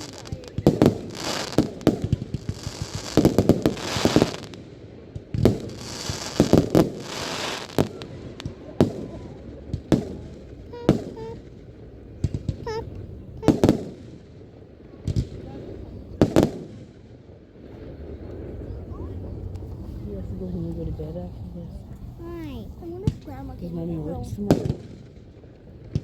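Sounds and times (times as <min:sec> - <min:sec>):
fireworks crackling: 0:00.0 - 0:20.9, 0:22.2 - 0:26.0
fireworks bangs: 0:00.0 - 0:21.0, 0:22.4 - 0:26.0
fireworks booms: 0:00.0 - 0:21.1, 0:22.8 - 0:26.0.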